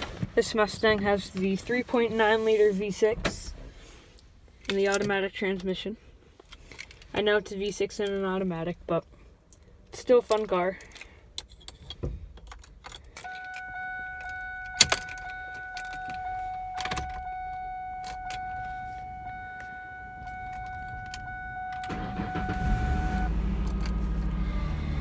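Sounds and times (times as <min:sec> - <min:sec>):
keys clicking in ignition: 0:10.2 - 0:25.0
car engine starting and idling: 0:12.5 - 0:25.0
car warning chime: 0:13.2 - 0:25.0.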